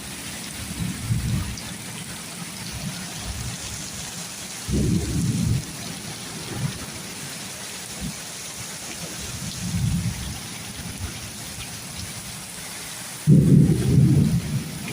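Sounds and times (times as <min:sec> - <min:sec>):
thunder rumbling: 0:00.0 - 0:03.8, 0:04.6 - 0:08.2, 0:08.9 - 0:12.1, 0:13.2 - 0:14.9
heavy rain falling: 0:00.0 - 0:14.9.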